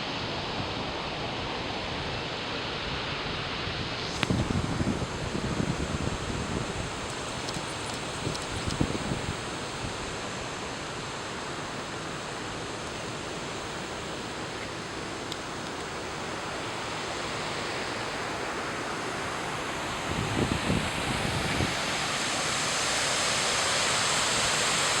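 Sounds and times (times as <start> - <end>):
wind buffeting microphone: 4.0 - 10.2, 19.8 - 22.0
rain falling on a lake: 4.1 - 25.0.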